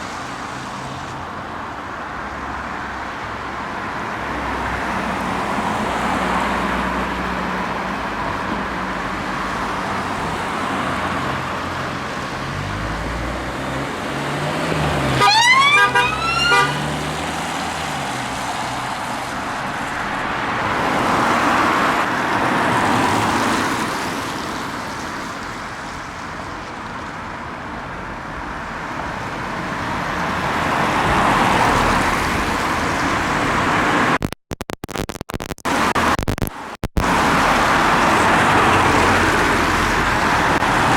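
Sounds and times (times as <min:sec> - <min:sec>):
road traffic: 0:00.0 - 0:40.9
police siren whoops: 0:15.1 - 0:16.9.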